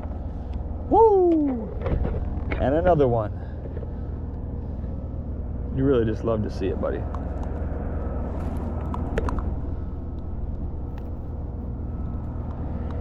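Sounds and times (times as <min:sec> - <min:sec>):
low outdoor rumble: 0:00.0 - 0:13.0
faint clicks and ticks: 0:11.9 - 0:13.0.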